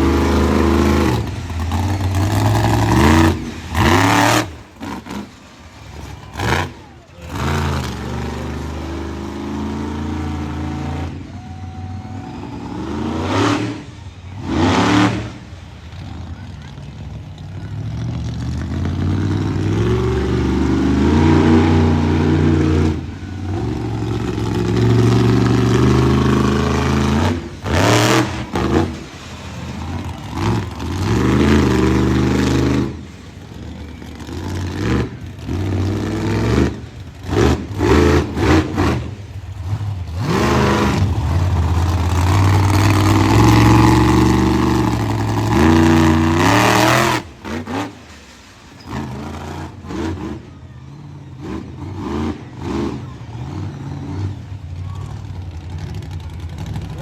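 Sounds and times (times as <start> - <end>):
truck engine revving: 0.0 - 57.0.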